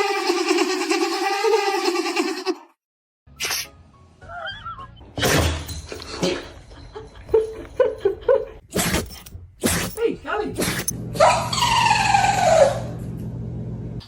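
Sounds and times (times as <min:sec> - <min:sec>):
dog sneezing: 0:03.4 - 0:03.8, 0:08.7 - 0:10.0, 0:10.6 - 0:10.9.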